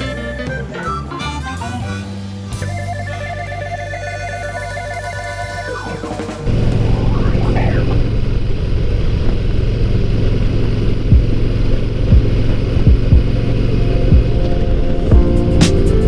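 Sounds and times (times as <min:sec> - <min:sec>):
motorcycle engine running: 0:01.9 - 0:14.4
low thumps: 0:11.1 - 0:14.4.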